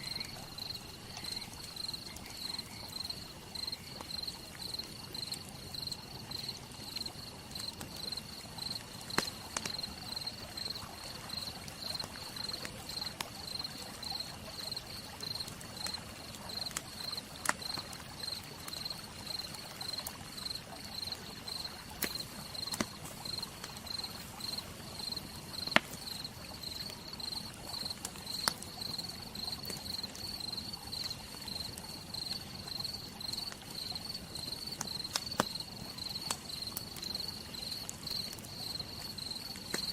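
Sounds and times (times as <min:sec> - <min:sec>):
insect chirping: 0:00.0 - 0:12.6, 0:13.4 - 0:39.9
wood fire crackling: 0:00.0 - 0:39.9
fire pops: 0:09.0 - 0:09.9, 0:21.7 - 0:26.2, 0:27.6 - 0:28.8, 0:34.8 - 0:38.5, 0:39.2 - 0:39.9.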